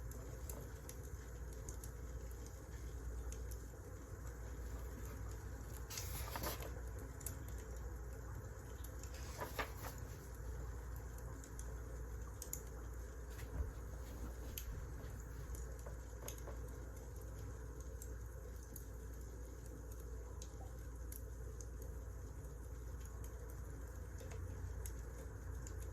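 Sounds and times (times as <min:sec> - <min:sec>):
wood fire crackling: 0:00.0 - 0:25.9.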